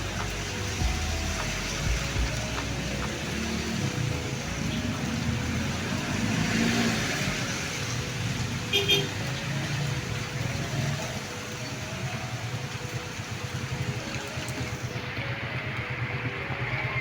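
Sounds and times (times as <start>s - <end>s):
passing cars: 0.0s - 17.0s
car horn toot: 8.7s - 9.2s.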